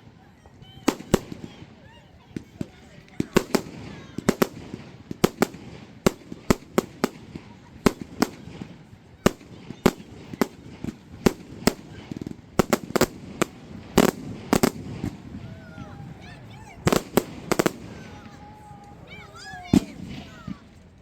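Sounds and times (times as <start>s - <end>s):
crowd murmuring: 0.0s - 21.0s
fireworks bangs: 0.0s - 21.0s.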